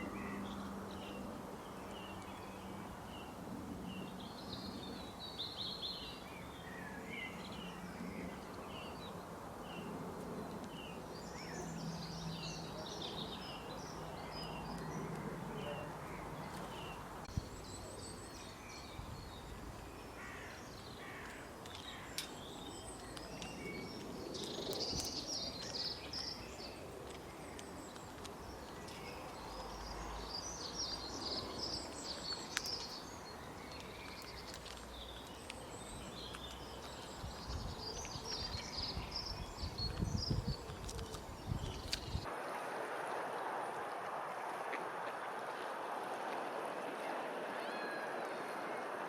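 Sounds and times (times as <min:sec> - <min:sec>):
small birds chirping: 0:00.0 - 0:42.3.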